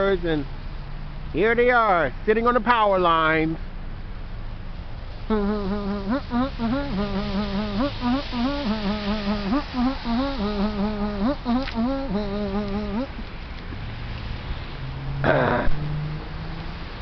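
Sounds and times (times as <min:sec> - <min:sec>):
person humming: 0:05.3 - 0:13.3, 0:15.2 - 0:15.7.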